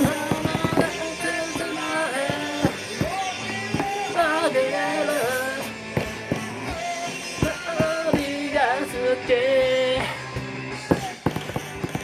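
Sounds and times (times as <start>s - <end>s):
drum hits: 0.0s - 4.5s, 5.9s - 8.6s, 10.4s - 12.0s.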